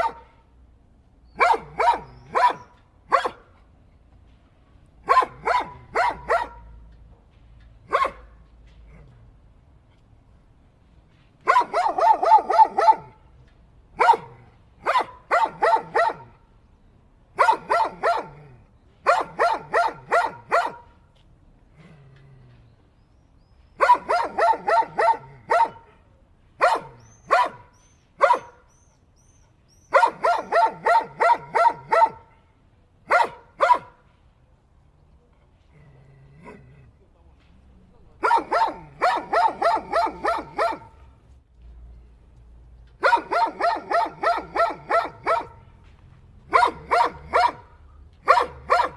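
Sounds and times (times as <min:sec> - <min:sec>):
dog barking: 0:00.0 - 0:00.4, 0:01.3 - 0:03.6, 0:05.0 - 0:06.8, 0:07.9 - 0:08.4, 0:11.4 - 0:13.2, 0:14.0 - 0:16.4, 0:17.4 - 0:21.0, 0:23.8 - 0:28.7, 0:29.9 - 0:32.4, 0:33.1 - 0:34.0, 0:38.2 - 0:41.1, 0:43.0 - 0:45.7, 0:46.5 - 0:48.9.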